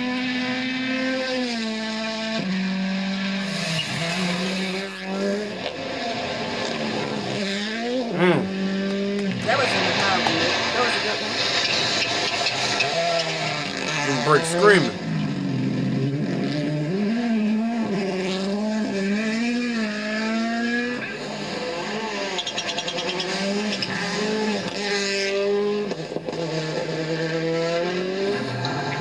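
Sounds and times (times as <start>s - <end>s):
rally car engine: 0.0s - 29.0s
tyre squeal: 3.4s - 5.1s.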